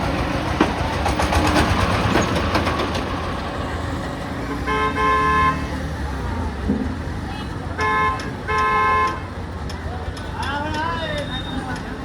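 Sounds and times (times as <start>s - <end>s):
heavy vehicle engines rumbling: 0.0s - 12.0s
vehicle horn toot: 4.6s - 5.8s, 7.8s - 9.3s.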